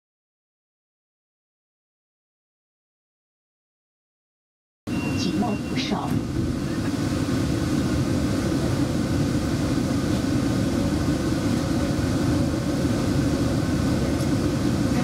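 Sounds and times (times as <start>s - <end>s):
train rumble and hum: 4.9s - 15.0s.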